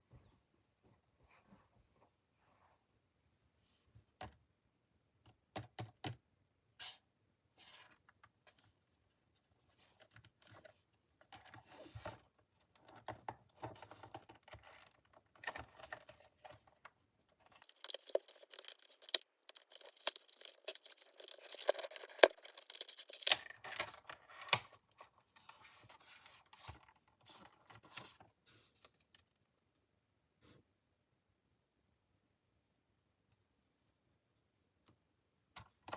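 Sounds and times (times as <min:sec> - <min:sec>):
packaging clicks and taps: 0:17.5 - 0:24.0
packaging crinkling and tearing: 0:17.5 - 0:24.6.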